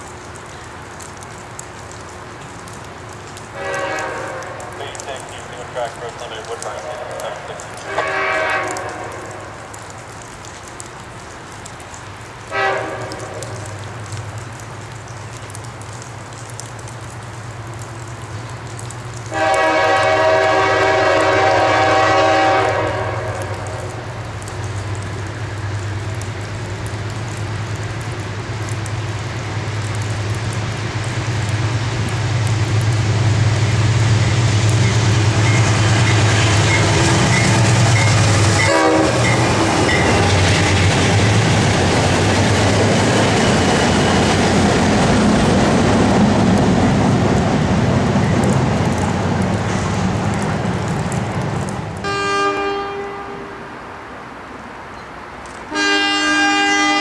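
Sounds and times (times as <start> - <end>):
locomotive engine drone: 0.0 - 11.6, 23.0 - 54.7
train horn blast: 3.6 - 5.3, 7.7 - 9.5, 12.5 - 13.6, 19.3 - 23.6, 35.3 - 40.3, 52.0 - 53.7, 55.7 - 57.0.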